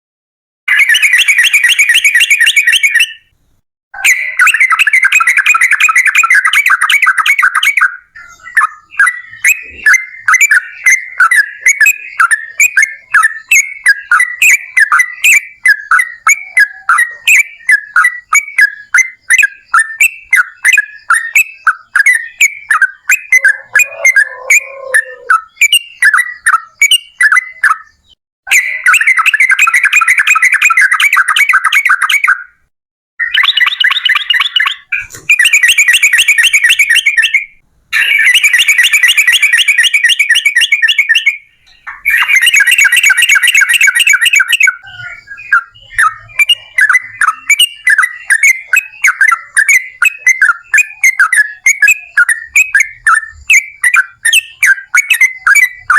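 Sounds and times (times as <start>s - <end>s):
rapid bird trill: 0.7s - 55.9s
bulbul singing: 4.0s - 32.6s, 33.2s - 55.9s
quick chirped bird notes: 33.2s - 55.9s.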